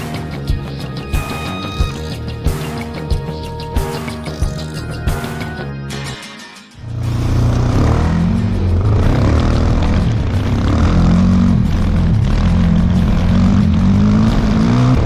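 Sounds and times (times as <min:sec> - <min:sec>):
motorcycle engine revving: 0:06.8 - 0:15.0.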